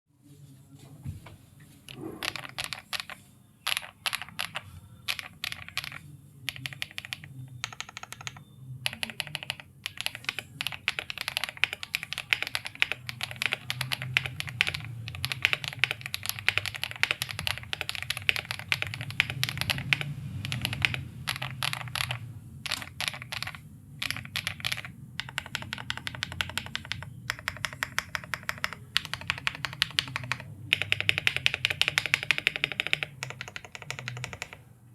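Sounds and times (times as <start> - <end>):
mechanical keyboard typing: 1.9 - 34.7.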